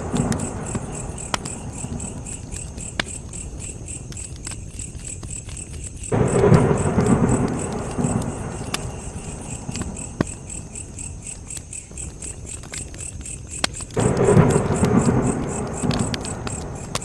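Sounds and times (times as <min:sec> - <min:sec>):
campfire crackling and popping: 0:00.0 - 0:17.0
crickets chirping: 0:00.0 - 0:17.0
low rumble: 0:06.1 - 0:10.8, 0:14.0 - 0:17.0.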